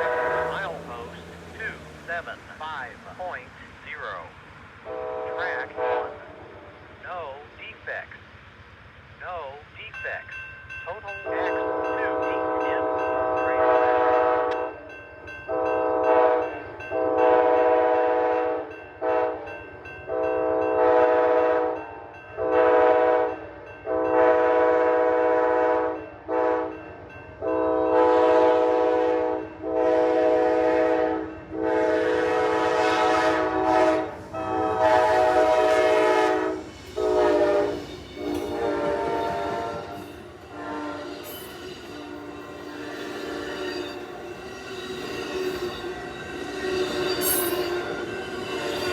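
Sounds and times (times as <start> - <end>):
train air horn blasts: 0.0 - 1.1, 4.8 - 6.3, 11.2 - 14.8, 15.5 - 19.5, 20.1 - 21.8, 22.4 - 26.8, 27.4 - 48.9
low train rumble: 0.0 - 48.9.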